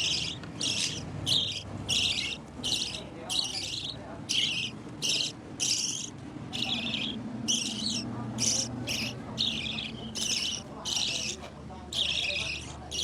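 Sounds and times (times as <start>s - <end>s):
parrot squawking: 0.0s - 13.0s.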